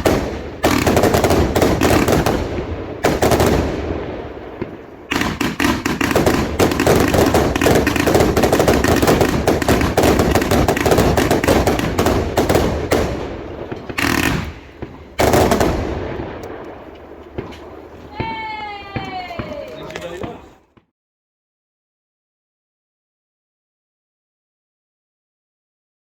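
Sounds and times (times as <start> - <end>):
loud firework burst: 0.0 - 16.4
fireworks bangs and crackles: 0.0 - 20.9.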